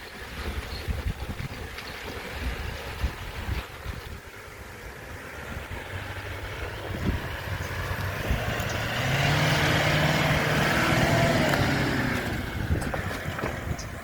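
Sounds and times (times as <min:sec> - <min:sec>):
vehicle engine passing by: 0:04.9 - 0:14.0.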